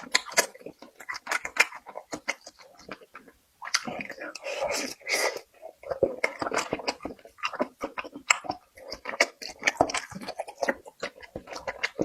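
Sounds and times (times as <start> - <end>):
person chewing with wet smacks: 0.0 - 12.0.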